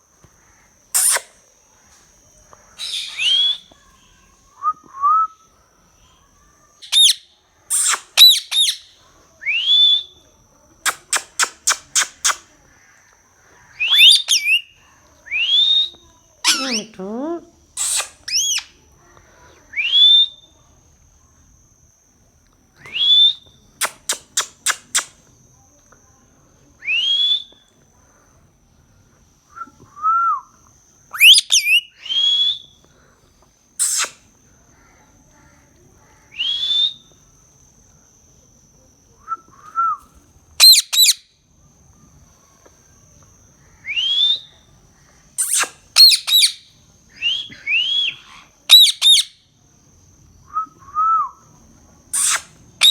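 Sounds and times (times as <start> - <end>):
parrot short sharp calls: 0.9 - 1.4, 52.1 - 52.9
parrot rising whistles: 2.8 - 3.7, 6.8 - 10.1, 13.8 - 14.7, 17.8 - 18.7, 31.2 - 32.7, 40.6 - 41.2, 43.8 - 44.5, 45.4 - 49.4, 52.1 - 52.9
parrot harsh screeches: 52.2 - 52.9.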